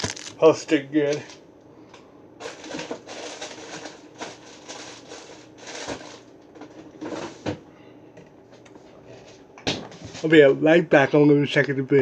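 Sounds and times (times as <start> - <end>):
rustling and handling noises: 0.0 - 1.4, 2.4 - 7.6.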